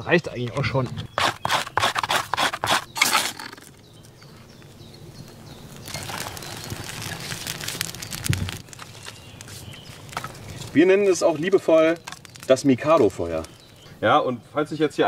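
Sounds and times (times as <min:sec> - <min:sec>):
campfire crackling: 0:02.8 - 0:14.6.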